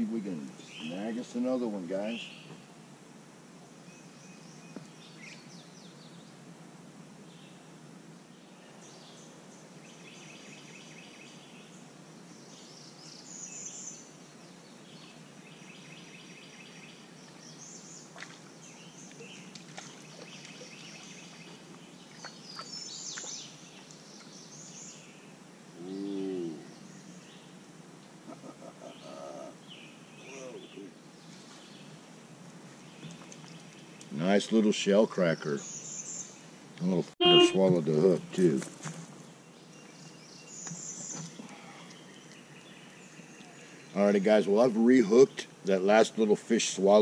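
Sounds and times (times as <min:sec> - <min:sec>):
songbirds chirping and trilling: 0:00.0 - 0:47.0
steady background hiss: 0:00.0 - 0:47.0
low-pitched bird call: 0:37.2 - 0:37.6.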